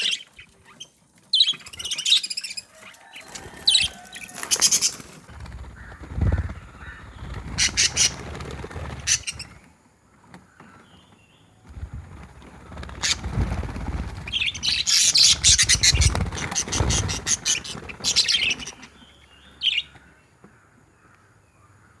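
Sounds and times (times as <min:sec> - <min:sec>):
budgerigars chirping and squawking: 0:00.0 - 0:05.2, 0:05.8 - 0:09.6, 0:12.8 - 0:13.5, 0:14.2 - 0:20.2.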